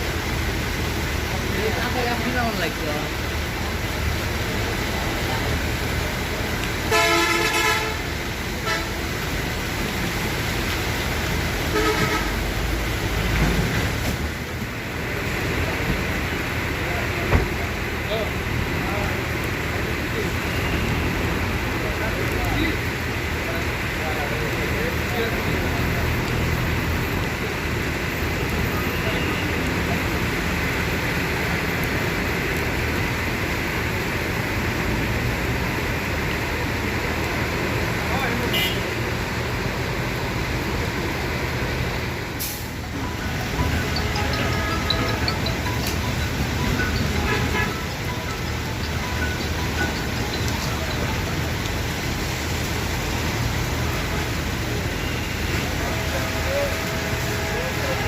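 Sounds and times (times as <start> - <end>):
engine and road rumble: 0.0 - 58.0
vehicle horns honking: 6.9 - 9.0, 11.7 - 12.4, 38.5 - 38.9, 43.6 - 48.4.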